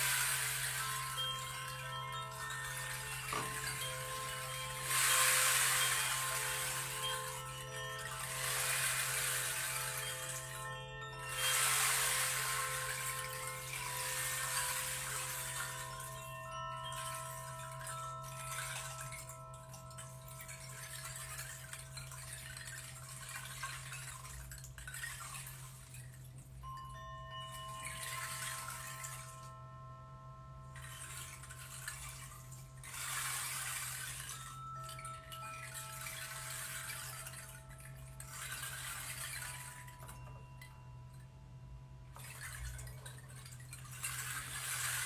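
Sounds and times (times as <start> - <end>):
struck metal tones ringing: 0.0 - 11.6
running stream: 0.0 - 26.3, 30.8 - 40.9, 42.1 - 45.0.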